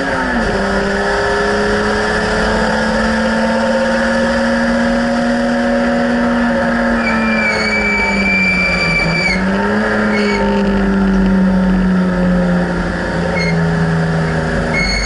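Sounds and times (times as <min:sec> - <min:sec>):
race car engine accelerating: 0:00.0 - 0:15.0
high steady squeal: 0:06.9 - 0:09.5, 0:10.1 - 0:10.6, 0:13.3 - 0:13.7, 0:14.7 - 0:15.0.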